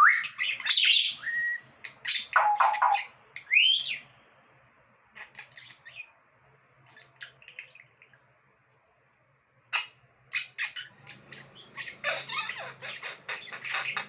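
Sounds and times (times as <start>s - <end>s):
parrot whistling and squawking: 0.0s - 4.0s, 9.7s - 14.0s
parrot chirping softly: 0.0s - 14.0s.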